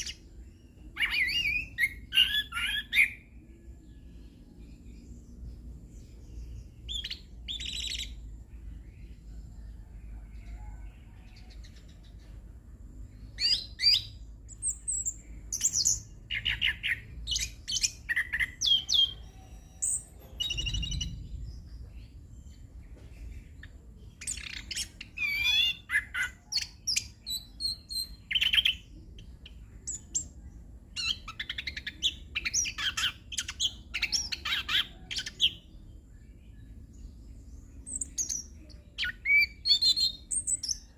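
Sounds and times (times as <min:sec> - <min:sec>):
thrush singing whistles and trills: 0:00.0 - 0:03.4, 0:06.7 - 0:08.4, 0:13.2 - 0:21.9, 0:24.1 - 0:35.8, 0:37.8 - 0:40.9
faint low hum: 0:00.0 - 0:40.9.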